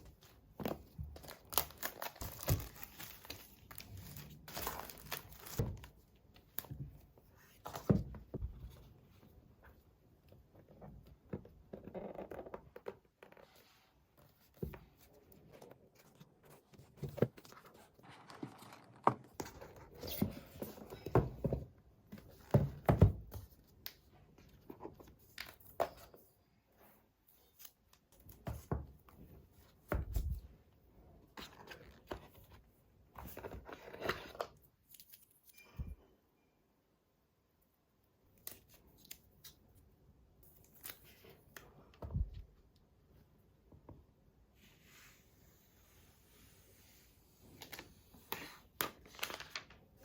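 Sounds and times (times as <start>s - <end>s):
packaging rustling and tearing: 1.2s - 5.6s.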